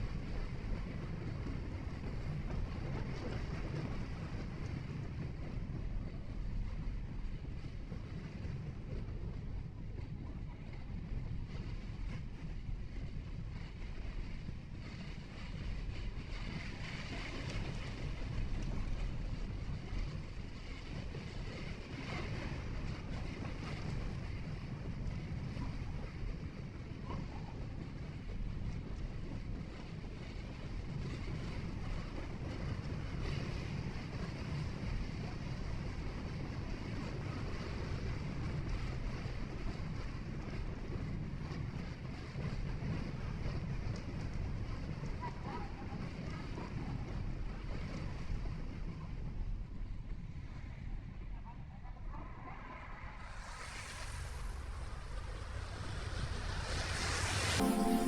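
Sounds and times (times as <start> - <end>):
tyres and engine rumble: 51.9 - 57.6
wind hiss: 52.1 - 58.0.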